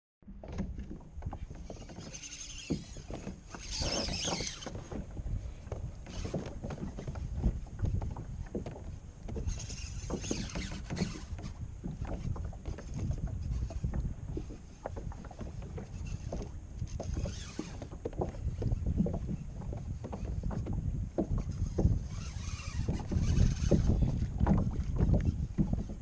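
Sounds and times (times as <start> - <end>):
water splashing and lapping: 0.2 - 26.0
wind buffeting microphone: 0.2 - 26.0
knocks against kayak hull: 22.9 - 26.0.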